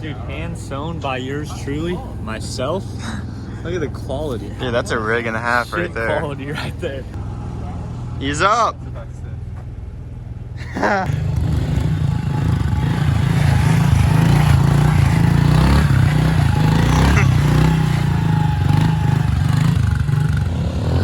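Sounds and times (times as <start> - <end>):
small motorcycle engine running: 11.0 - 21.0.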